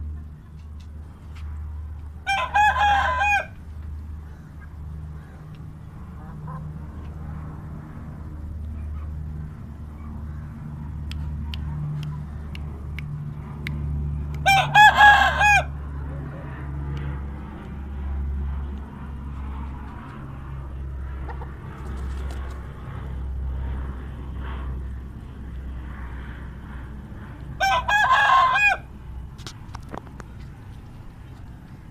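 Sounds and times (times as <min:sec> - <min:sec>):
steady low hum: 0:00.0 - 0:31.9
rooster crowing: 0:02.2 - 0:03.6, 0:14.4 - 0:15.8, 0:27.6 - 0:28.9.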